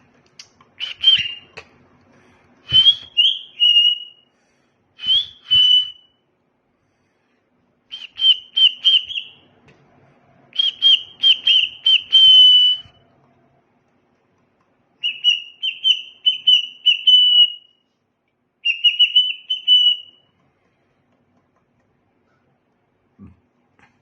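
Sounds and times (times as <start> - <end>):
cockatiel whistling: 0.8 - 1.6, 2.7 - 4.2, 5.0 - 6.1, 7.9 - 9.5, 10.6 - 13.0, 15.0 - 17.8, 18.6 - 20.3.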